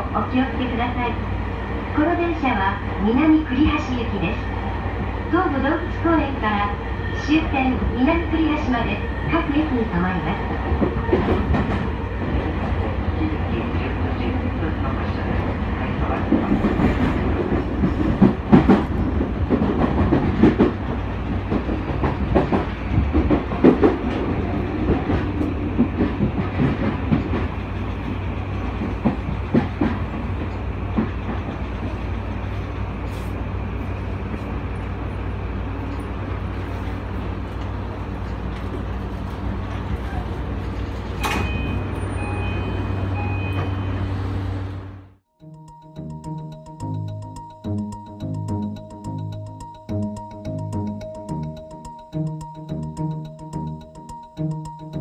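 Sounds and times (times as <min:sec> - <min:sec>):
train wheels clattering over rail joints: 0:16.2 - 0:32.0.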